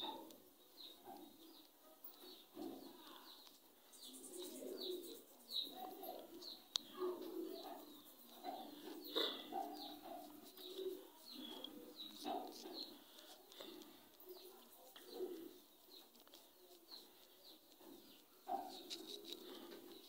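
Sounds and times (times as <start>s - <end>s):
birds chirping: 0.0s - 20.0s
birds cooing: 4.0s - 5.2s, 5.8s - 16.0s.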